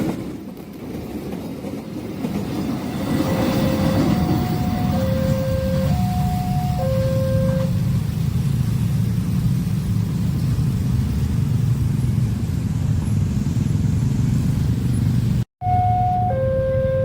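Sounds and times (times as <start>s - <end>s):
train rumbling past: 0.0s - 17.0s
two-tone crossing warning alarm: 3.2s - 7.8s, 15.6s - 17.0s.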